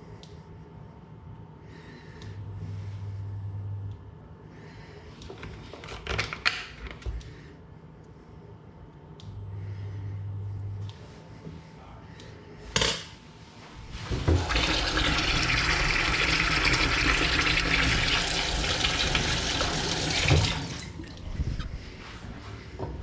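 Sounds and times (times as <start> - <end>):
kitchen tap running: 13.8 - 21.3.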